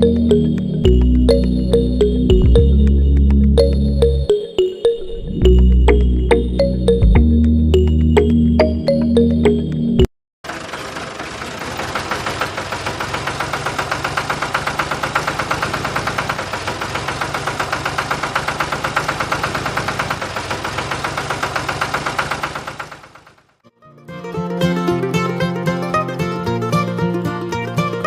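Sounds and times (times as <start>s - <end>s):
diesel engine chugging: 10.4s - 23.6s.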